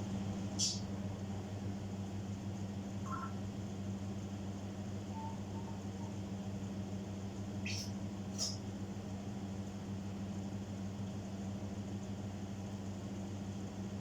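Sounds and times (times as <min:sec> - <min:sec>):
low electrical hum: 0:00.0 - 0:14.0
parrot chirping: 0:03.1 - 0:03.4, 0:07.6 - 0:07.9.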